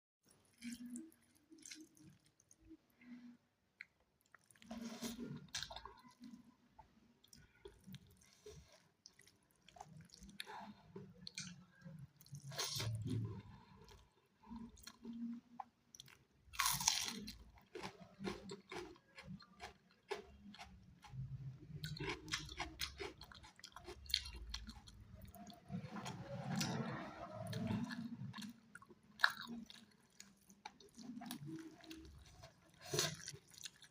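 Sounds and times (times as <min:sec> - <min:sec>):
wet chewing: 0:07.2 - 0:33.9.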